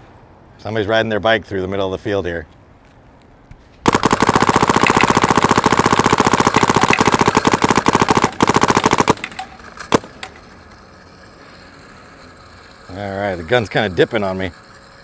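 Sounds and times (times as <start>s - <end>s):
paintball marker firing: 3.9s - 10.4s.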